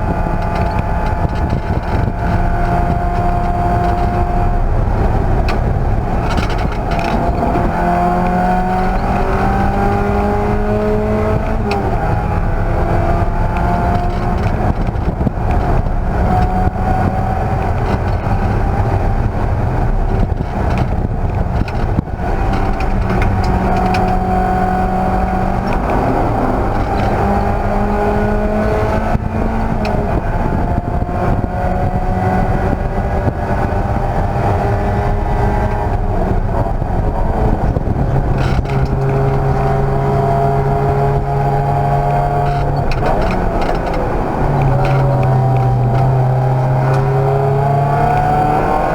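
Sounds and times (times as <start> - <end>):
race car engine accelerating: 0.0 - 48.9
road and wind noise: 0.0 - 48.9.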